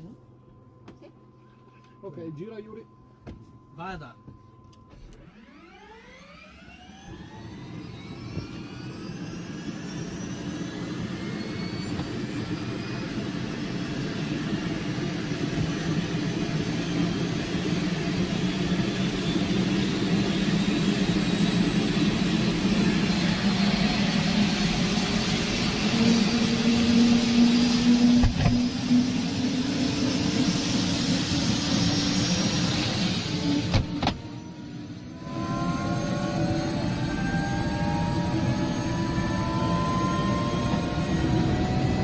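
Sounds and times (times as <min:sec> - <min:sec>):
helicopter engine whine: 0:01.6 - 0:42.0
helicopter rotor noise: 0:05.3 - 0:42.0.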